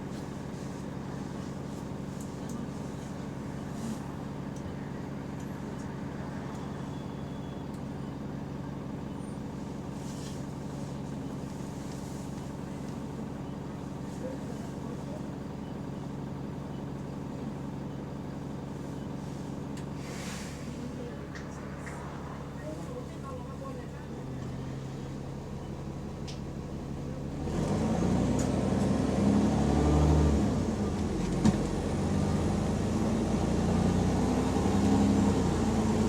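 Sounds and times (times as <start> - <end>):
bus engine running: 0.0 - 36.0
brief hisses: 20.0 - 20.9.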